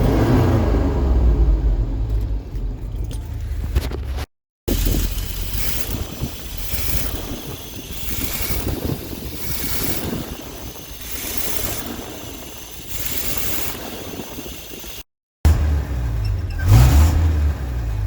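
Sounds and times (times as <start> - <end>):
vehicle engine rumbling: 0.0 - 18.0
wind noise on microphone: 2.8 - 15.0.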